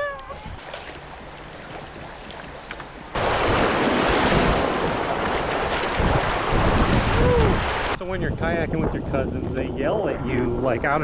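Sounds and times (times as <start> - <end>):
wind buffeting microphone: 3.4 - 11.0.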